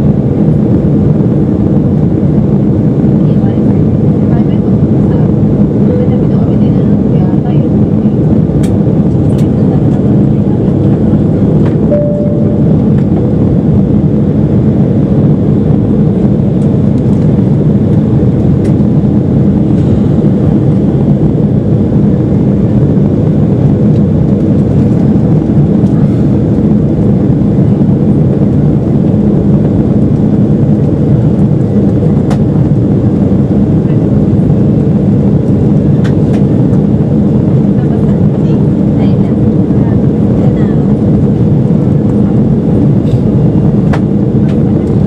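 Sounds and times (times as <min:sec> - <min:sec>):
airliner cabin engine noise: 0:00.0 - 0:45.0
faint tone: 0:11.8 - 0:13.1.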